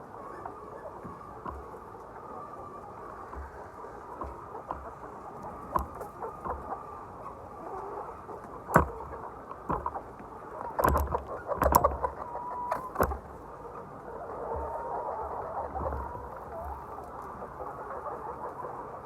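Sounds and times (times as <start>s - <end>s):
chickens clucking: 0.0s - 19.0s
sharp knocks: 4.2s - 6.7s, 8.7s - 10.1s, 10.8s - 13.4s.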